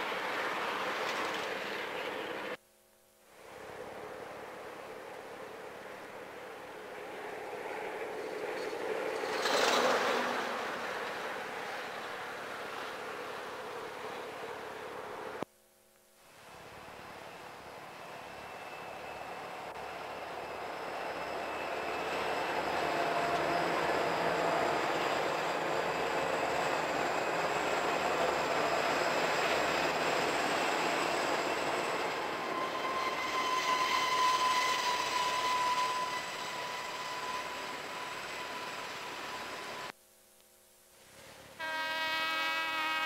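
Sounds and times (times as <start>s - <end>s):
diesel locomotive engines: 0.0s - 2.6s, 3.4s - 15.4s, 16.6s - 39.9s, 41.2s - 43.0s
high wheel squeal: 17.1s - 39.9s.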